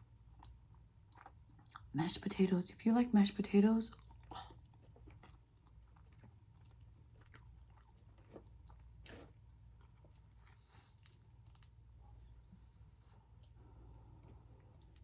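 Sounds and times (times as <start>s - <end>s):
chewing crispy food: 0.0s - 2.3s, 3.8s - 12.3s.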